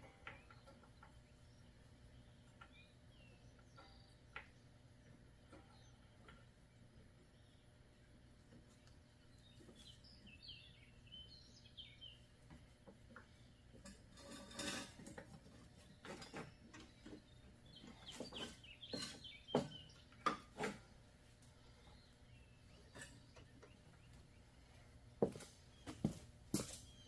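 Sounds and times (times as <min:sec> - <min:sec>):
bird chirping: 0:00.0 - 0:13.8, 0:15.7 - 0:20.6, 0:21.5 - 0:24.9, 0:26.8 - 0:27.0.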